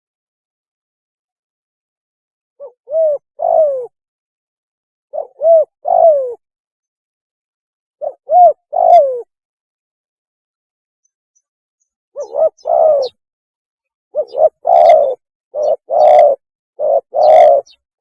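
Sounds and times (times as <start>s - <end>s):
dove cooing: 2.6s - 4.0s, 5.1s - 6.4s, 8.0s - 9.3s, 12.2s - 13.2s, 14.2s - 17.8s.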